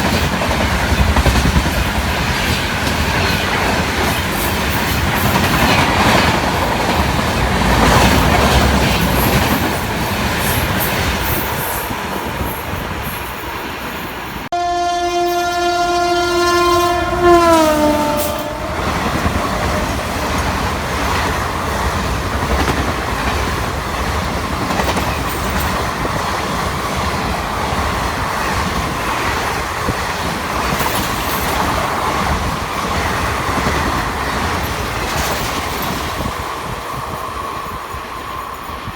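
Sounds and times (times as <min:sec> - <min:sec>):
train rushing past: 0:00.0 - 0:38.9
locomotive horn: 0:14.5 - 0:19.3.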